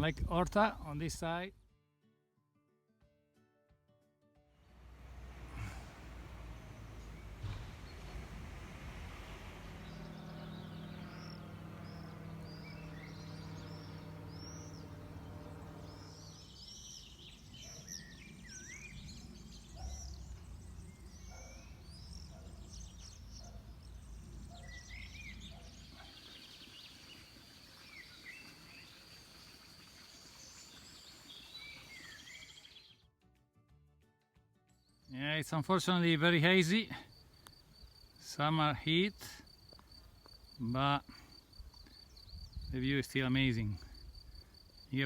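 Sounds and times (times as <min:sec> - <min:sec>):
low hum: 0:04.7 - 0:26.1
small birds chirping: 0:05.2 - 0:33.0, 0:34.8 - 0:45.0.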